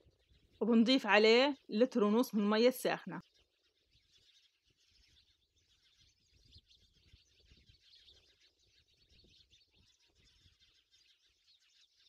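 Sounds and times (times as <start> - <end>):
distant birds chirping: 0.0 - 12.0.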